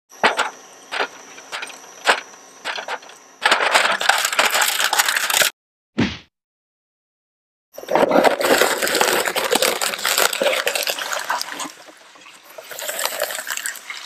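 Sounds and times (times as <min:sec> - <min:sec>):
shredder motor whine: 0:00.1 - 0:05.5, 0:07.8 - 0:14.0
plastic cracking in shredder: 0:00.2 - 0:05.5, 0:07.8 - 0:14.0
dense plastic crunching: 0:00.3 - 0:05.5, 0:07.8 - 0:13.7.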